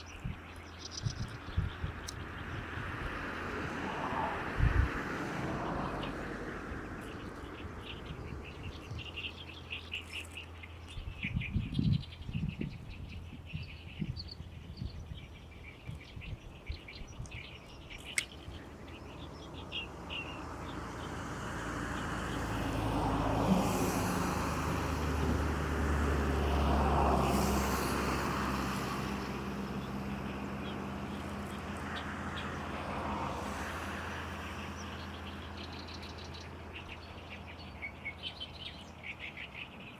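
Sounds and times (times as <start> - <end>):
bird chattering song: 0.0 - 2.3, 7.0 - 20.4
passing engine drone: 2.3 - 9.2, 20.1 - 37.1.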